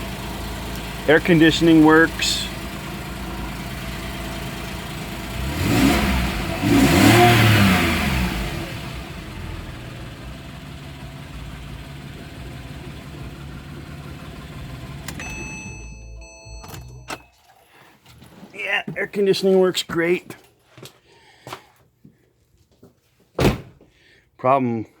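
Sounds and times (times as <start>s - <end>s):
car engine idling: 0.0s - 17.2s
engine revving blips: 0.0s - 17.3s.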